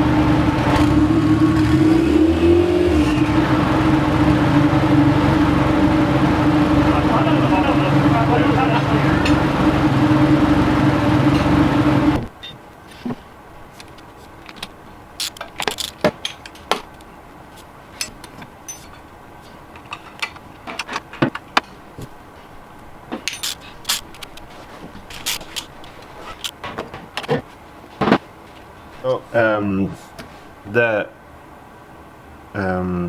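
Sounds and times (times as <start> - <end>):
turbocharged engine running: 0.0 - 12.3.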